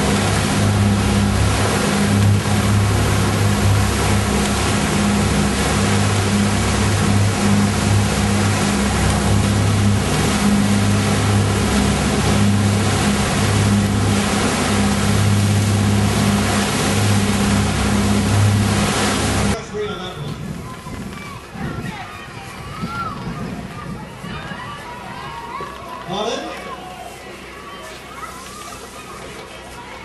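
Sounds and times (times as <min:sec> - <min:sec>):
loud rushing noise: 0:00.0 - 0:19.6
motor humming: 0:00.0 - 0:19.6.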